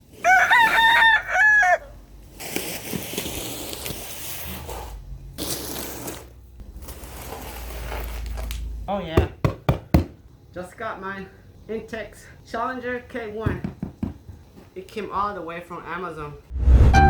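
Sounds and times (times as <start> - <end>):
rooster crowing: 0.1 - 2.0.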